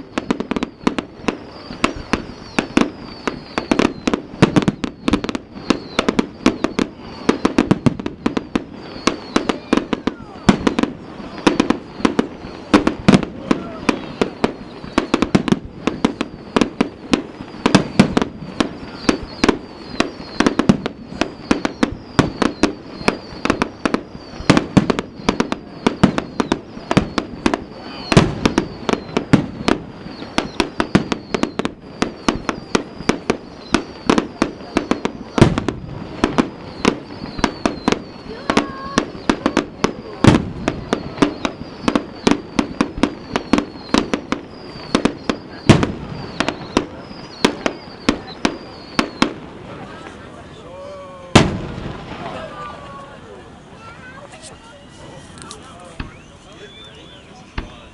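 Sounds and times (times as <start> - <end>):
fireworks booms and bangs: 0.0 - 53.2, 55.0 - 57.9.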